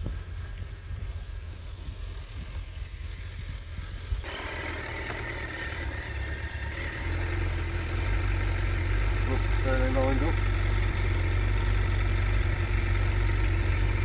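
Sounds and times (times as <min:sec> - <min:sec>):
wind rumble on microphone: 0:00.0 - 0:04.3
motorcycle engine idling: 0:00.0 - 0:14.0.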